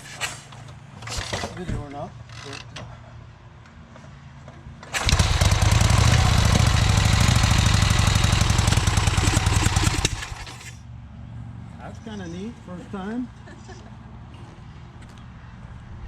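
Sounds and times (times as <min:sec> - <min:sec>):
engine kick-starting and running: 0:04.8 - 0:10.8.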